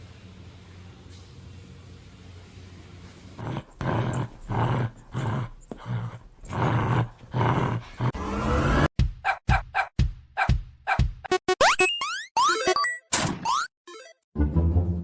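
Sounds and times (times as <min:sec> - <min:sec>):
rising sweep: 0:08.2 - 0:08.9.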